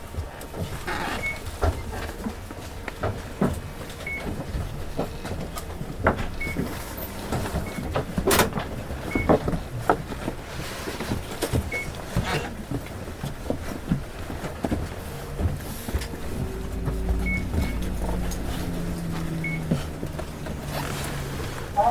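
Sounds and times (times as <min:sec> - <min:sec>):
bus engine idling: 0:01.4 - 0:09.2, 0:15.0 - 0:21.9
knocks and thumps: 0:03.0 - 0:21.7.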